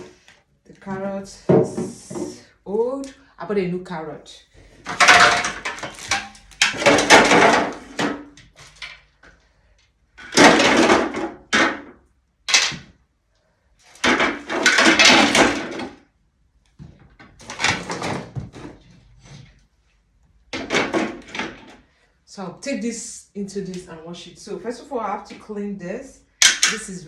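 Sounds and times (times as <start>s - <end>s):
plastic fridge drawers rattling: 4.9s - 8.9s, 10.2s - 11.8s, 14.0s - 16.0s, 17.3s - 18.9s, 20.6s - 21.8s.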